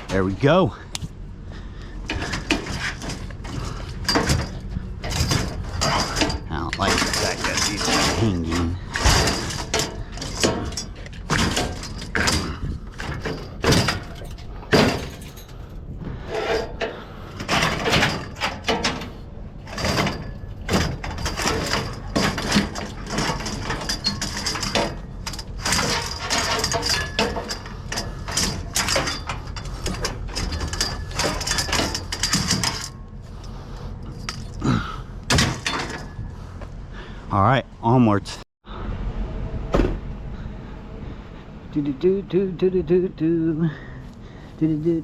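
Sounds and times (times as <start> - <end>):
low rumble: 27.5 - 45.0.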